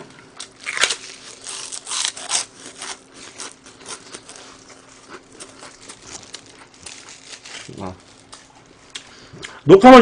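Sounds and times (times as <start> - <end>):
crunchy chewing: 0.4 - 9.6.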